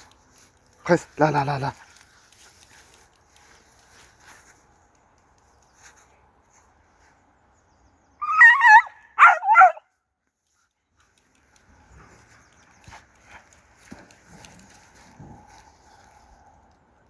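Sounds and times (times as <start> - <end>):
dog yelping: 8.2 - 9.8.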